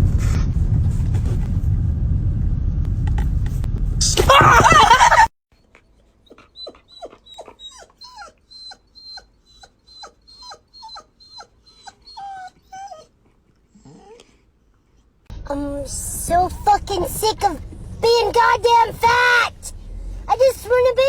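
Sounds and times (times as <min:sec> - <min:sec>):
dog whining in short cries: 0:06.3 - 0:13.1.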